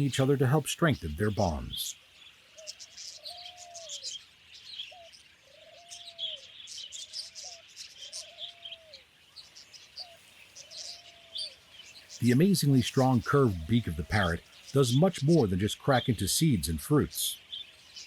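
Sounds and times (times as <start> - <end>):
small birds chirping: 0.0 - 18.0
low cooing bird call: 2.6 - 4.2, 4.8 - 9.1.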